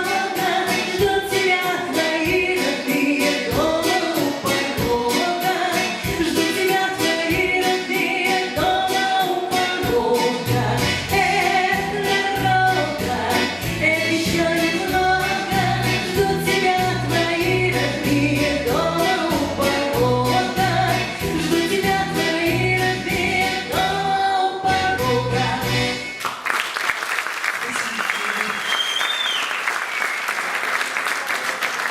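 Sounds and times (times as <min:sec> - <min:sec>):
bass line: 0:10.0 - 0:25.9.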